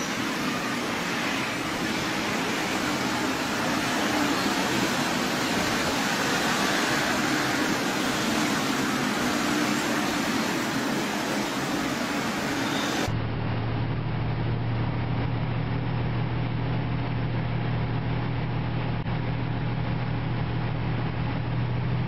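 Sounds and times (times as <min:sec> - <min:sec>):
train rushing along track: 0:00.0 - 0:13.2.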